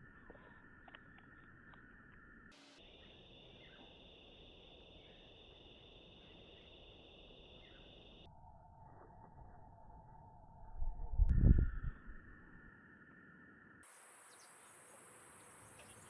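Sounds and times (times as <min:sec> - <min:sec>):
insect chorus trilling: 0:02.4 - 0:08.3, 0:11.5 - 0:16.0.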